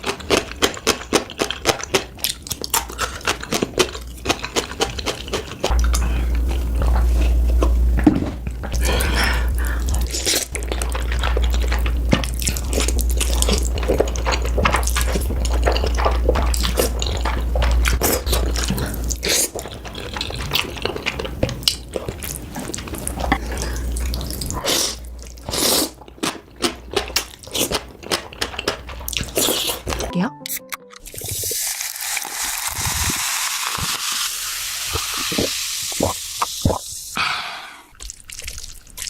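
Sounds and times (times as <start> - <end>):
wet chewing and crunching: 0.0 - 30.1, 37.9 - 39.0
low hum: 5.6 - 19.2.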